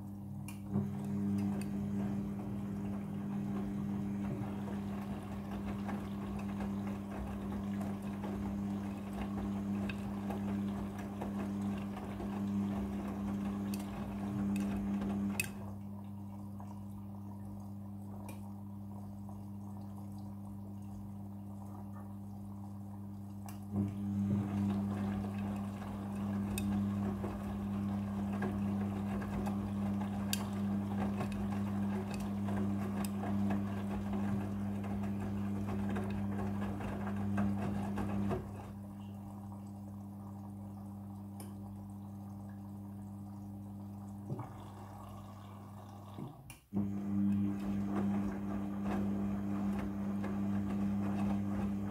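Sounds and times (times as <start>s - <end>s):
washing machine hum: 0.0s - 51.9s
washing machine click: 0.4s - 15.7s, 23.4s - 38.8s.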